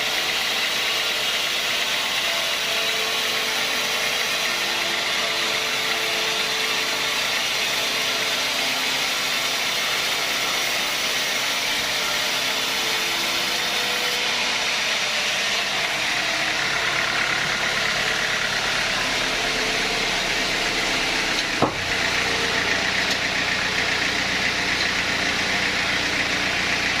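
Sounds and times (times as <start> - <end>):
sawmill machinery running: 0.0 - 27.0
heavy low hum: 11.4 - 27.0.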